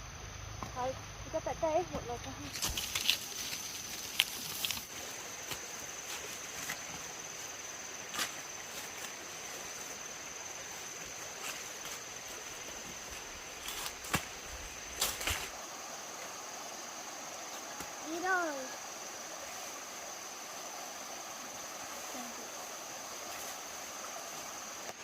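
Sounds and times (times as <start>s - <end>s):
high insect drone: 0.0s - 25.0s
rustling: 2.2s - 7.1s.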